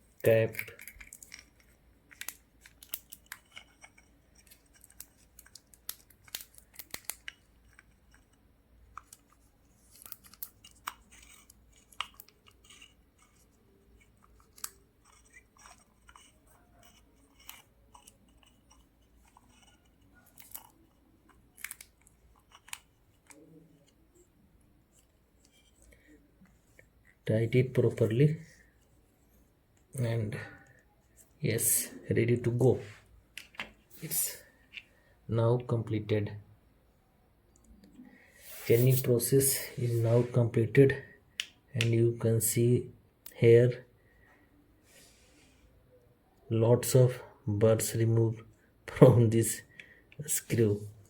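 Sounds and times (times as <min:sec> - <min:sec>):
small metal clicks and scrapes: 0:00.1 - 0:24.3.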